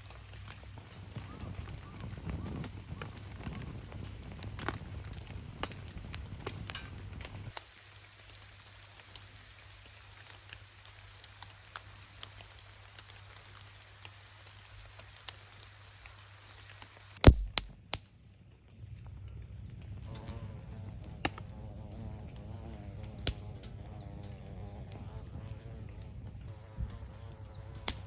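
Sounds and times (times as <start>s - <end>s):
light rain pattering on a tarp: 0.0s - 28.0s
sharp knocks: 17.3s - 17.8s.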